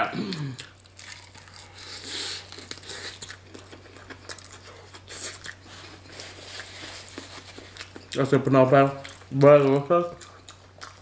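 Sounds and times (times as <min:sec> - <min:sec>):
crispy chicken crunching: 0:00.3 - 0:11.0.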